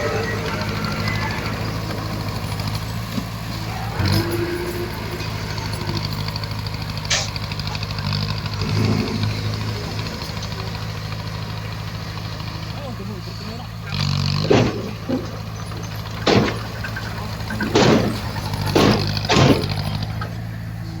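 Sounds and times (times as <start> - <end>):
bulldozer diesel engine running: 0.0 - 21.0.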